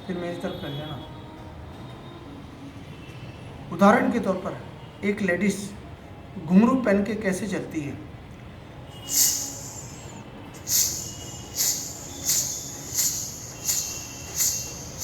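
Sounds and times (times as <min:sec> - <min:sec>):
mouth imitating jingling ankle bells: 0:09.1 - 0:15.0.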